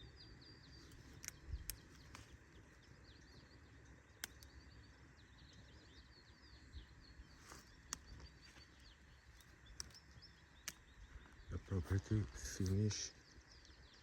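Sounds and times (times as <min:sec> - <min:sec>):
small birds chirping: 0:00.0 - 0:14.0
sharp clicks: 0:00.8 - 0:02.6, 0:04.1 - 0:04.6, 0:07.5 - 0:08.4, 0:09.3 - 0:10.9, 0:11.9 - 0:13.0.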